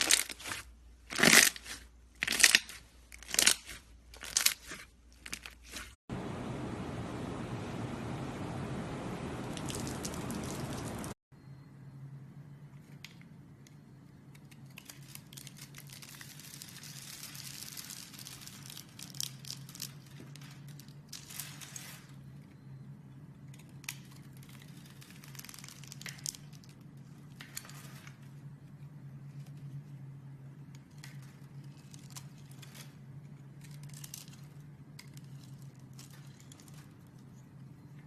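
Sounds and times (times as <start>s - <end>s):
steady low hum: 6.1s - 12.7s.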